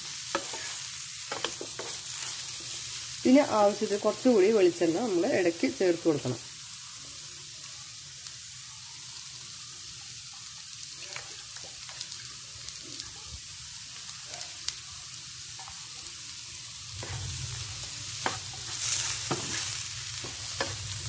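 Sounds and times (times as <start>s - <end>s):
potatoes sizzling in oil: 0.0s - 21.0s
wooden spatula scraping a pan: 0.3s - 2.9s, 17.0s - 21.0s.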